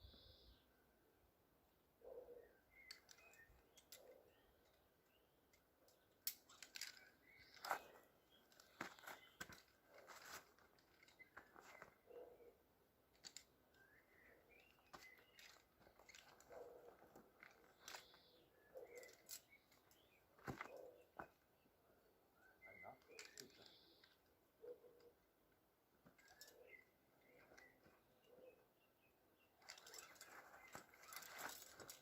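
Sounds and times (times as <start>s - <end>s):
faint bird chirps: 0.0s - 0.9s, 2.0s - 25.2s, 26.1s - 32.0s
faint irregular clicks: 2.7s - 12.0s, 13.0s - 20.2s, 25.0s - 28.0s.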